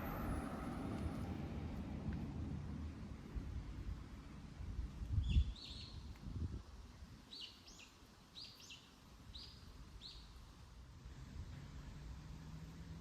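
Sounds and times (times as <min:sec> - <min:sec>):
songbird chirping: 0:05.2 - 0:06.1, 0:07.3 - 0:10.4.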